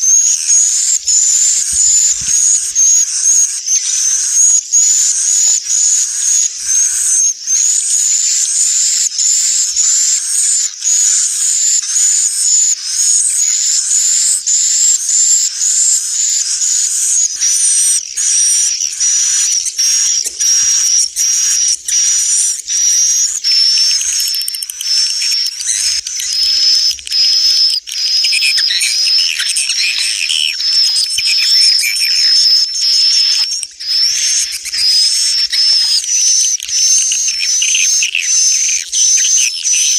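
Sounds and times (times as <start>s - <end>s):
lower twittering: 0.0s - 7.0s
swiftlet chirps and twitters: 0.0s - 39.9s.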